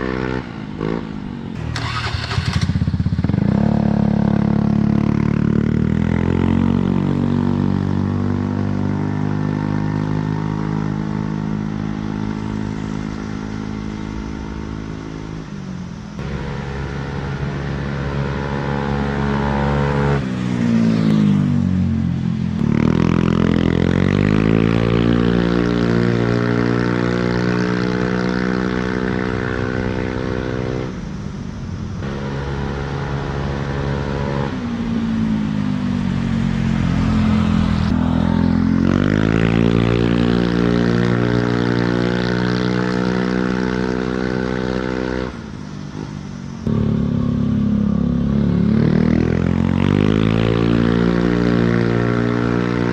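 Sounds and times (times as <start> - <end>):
scooter engine revving: 0.0 - 9.6, 46.6 - 52.9.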